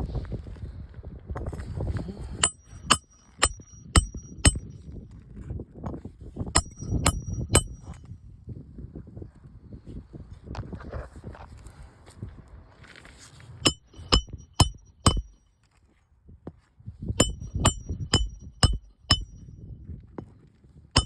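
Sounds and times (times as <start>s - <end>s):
hammer striking roofing nails: 2.4s - 4.8s, 6.6s - 8.0s, 13.7s - 15.4s, 17.2s - 19.4s.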